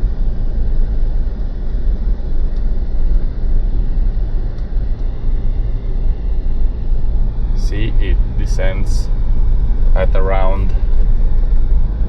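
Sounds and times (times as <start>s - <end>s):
diesel engine idling: 4.7s - 12.0s.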